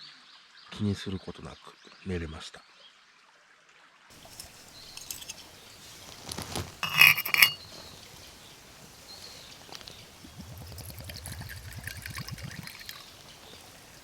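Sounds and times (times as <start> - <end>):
hard objects clinking and clattering: 4.2 - 14.0.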